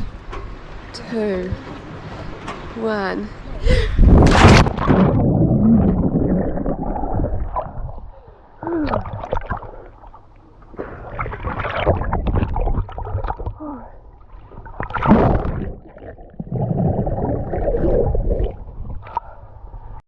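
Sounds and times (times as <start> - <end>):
water splashing and gurgling: 3.7 - 19.5.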